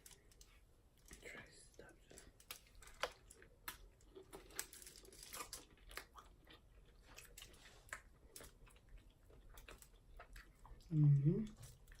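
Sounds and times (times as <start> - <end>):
small crunches and wet clicks: 0.0 - 10.9
person chewing: 2.1 - 12.0.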